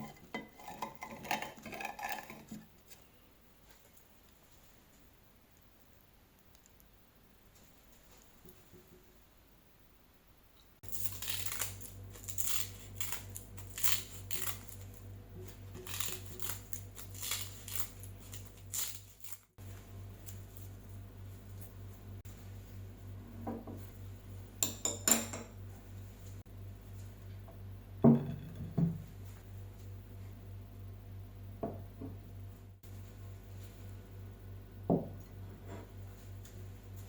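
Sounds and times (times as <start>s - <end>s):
clicks and scrapes of handling: 0.0s - 3.0s
steady low hum: 0.0s - 37.0s.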